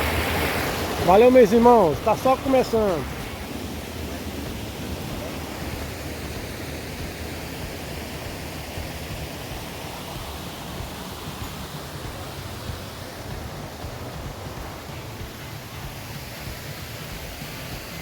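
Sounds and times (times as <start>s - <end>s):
river water rushing over waterfalls: 0.0s - 18.0s.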